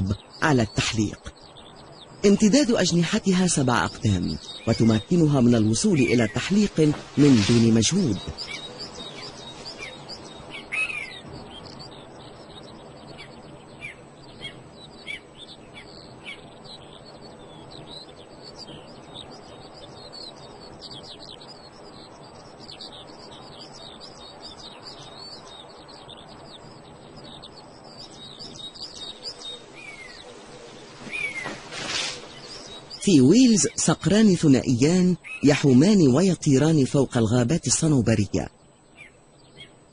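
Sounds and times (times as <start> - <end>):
birds chirping: 0.0 - 39.9
downward-sliding bird call: 29.8 - 32.8.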